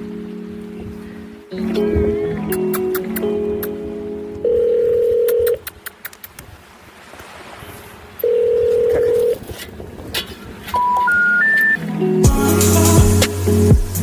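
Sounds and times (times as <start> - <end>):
telephone ringback tone: 4.4 - 5.6, 8.2 - 9.4, 10.8 - 11.8
three-tone rising beeps: 10.8 - 11.8.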